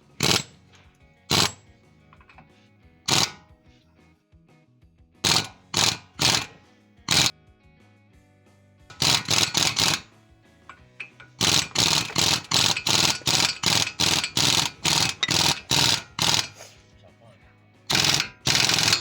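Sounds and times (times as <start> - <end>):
sharp metallic tool impacts: 0.0 - 0.7, 1.3 - 1.6, 3.1 - 3.4, 5.3 - 7.3, 8.9 - 10.1, 10.7 - 16.6, 17.9 - 19.0
faint background music: 0.0 - 19.0.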